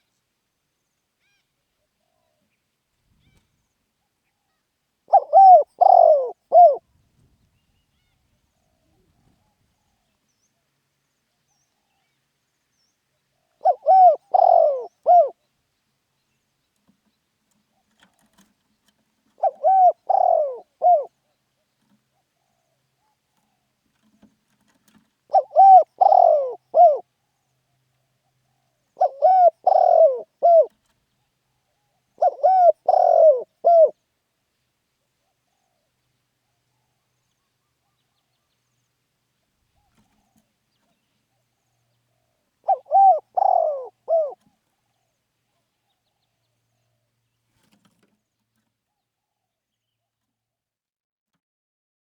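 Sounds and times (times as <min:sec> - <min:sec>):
dove cooing: 0:05.1 - 0:06.8, 0:13.5 - 0:15.4, 0:19.3 - 0:24.2, 0:24.8 - 0:27.1, 0:28.2 - 0:30.9, 0:31.8 - 0:34.0, 0:41.3 - 0:45.1.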